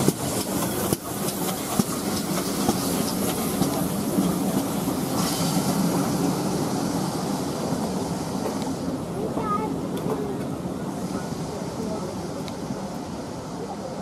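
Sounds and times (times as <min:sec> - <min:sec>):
wheels clicking over rail joints: 0:00.0 - 0:05.4
train wheels rumbling on rails: 0:00.0 - 0:14.0.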